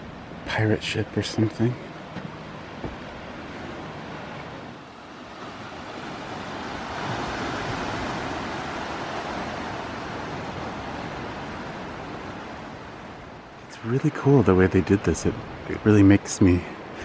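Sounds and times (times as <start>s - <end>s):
ocean surf on rocks: 0.0s - 17.0s.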